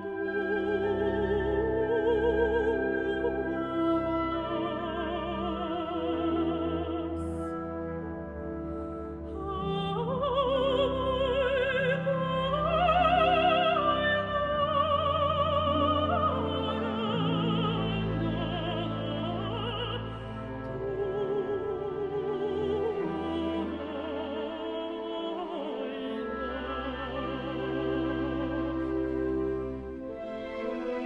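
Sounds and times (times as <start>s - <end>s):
orchestral accompaniment: 0.0s - 31.0s
woman singing with vibrato: 9.3s - 29.1s.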